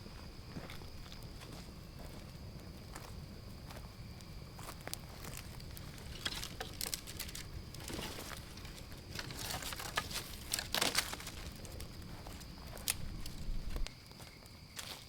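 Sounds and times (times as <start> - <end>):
footsteps crunching through dry leaves: 5.4 - 13.9.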